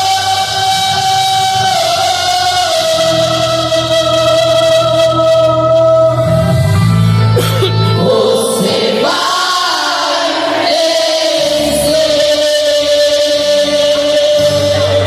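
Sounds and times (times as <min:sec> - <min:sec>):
instrumental backing with bass: 0:00.0 - 0:15.0
voices singing: 0:07.7 - 0:15.0.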